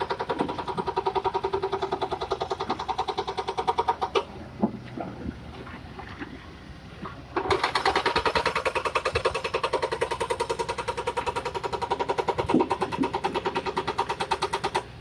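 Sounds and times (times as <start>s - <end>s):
rapid mechanical clatter: 0.0s - 4.3s, 7.4s - 15.0s
excavator engine running: 0.0s - 15.0s.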